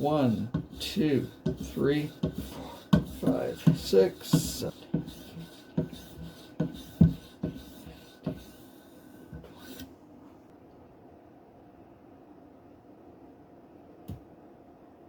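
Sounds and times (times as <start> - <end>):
knife scraping on strop: 0.0 - 8.6.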